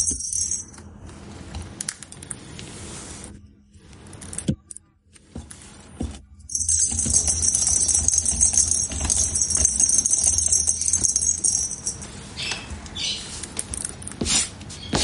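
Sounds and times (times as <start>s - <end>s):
metallic jingling and rattling: 0.0s - 0.8s, 6.5s - 12.5s.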